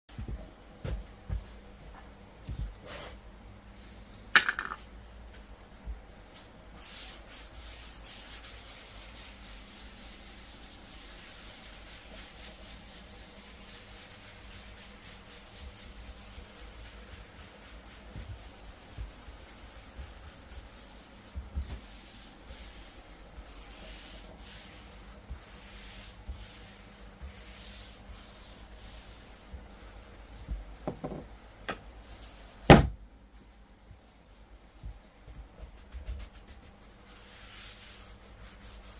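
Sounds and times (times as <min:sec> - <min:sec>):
knocks on wooden board: 0:30.8 - 0:31.8, 0:32.7 - 0:33.0.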